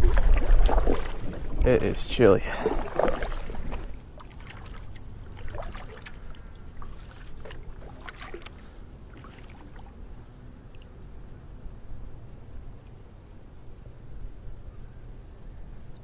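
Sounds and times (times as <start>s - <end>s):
paddle splashing water: 0.0s - 10.1s
steady low rumble: 0.0s - 14.6s.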